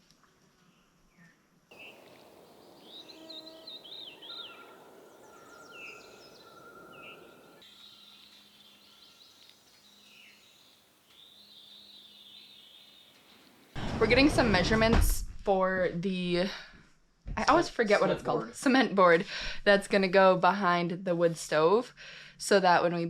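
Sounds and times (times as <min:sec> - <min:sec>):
songbirds singing and chirping: 0:01.1 - 0:13.7.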